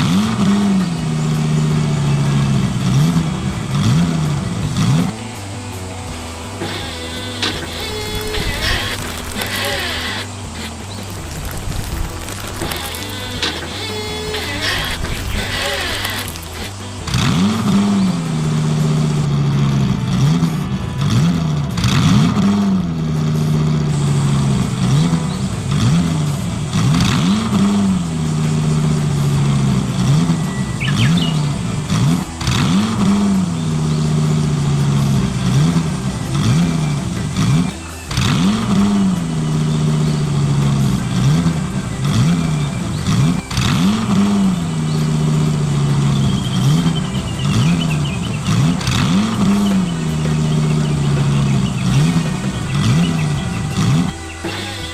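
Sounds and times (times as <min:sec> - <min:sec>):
simulated diesel engine revving: 0:00.0 - 0:54.9
clicks and clatter: 0:06.6 - 0:17.3.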